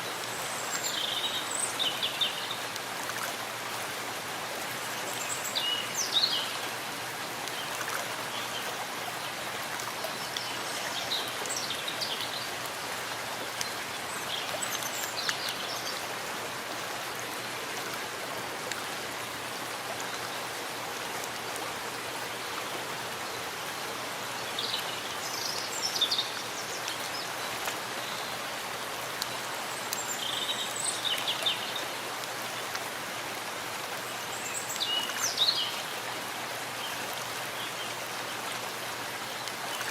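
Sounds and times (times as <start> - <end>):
running water: 0.0 - 39.9
steady rain falling: 0.0 - 39.9.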